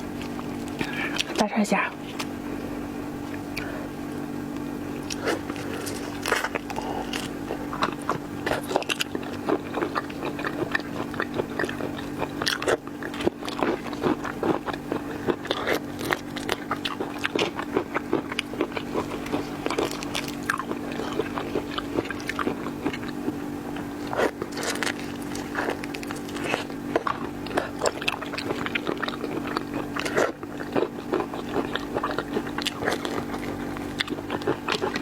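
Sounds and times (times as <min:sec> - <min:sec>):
chewing crunchy shellfish: 0:00.0 - 0:35.0
steady low hum: 0:00.0 - 0:35.0.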